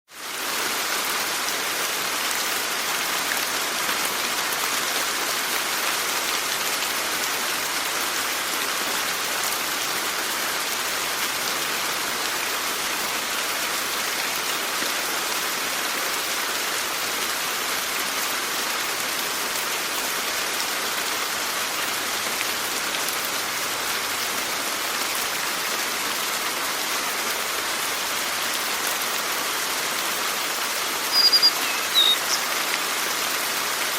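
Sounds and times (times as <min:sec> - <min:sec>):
rain pattering: 0:00.1 - 0:33.9.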